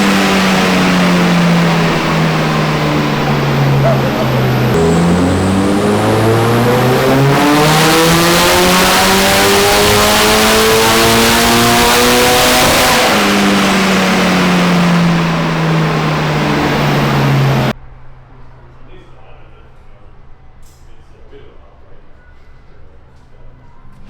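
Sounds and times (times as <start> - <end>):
turbocharged car engine revving: 0.0 - 17.8.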